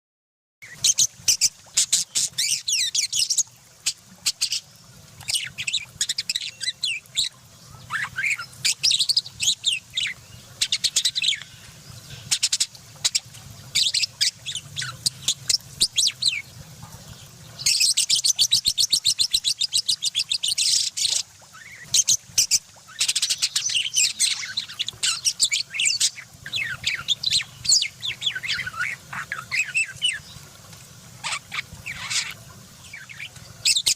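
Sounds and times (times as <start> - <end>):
lovebirds chirping: 19.8 - 30.5, 31.2 - 33.9.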